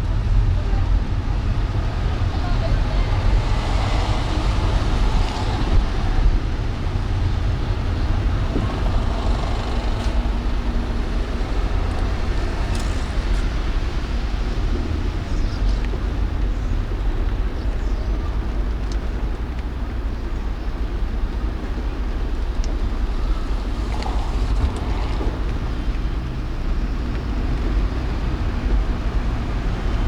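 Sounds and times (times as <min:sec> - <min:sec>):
car driving in traffic: 0:00.0 - 0:30.0.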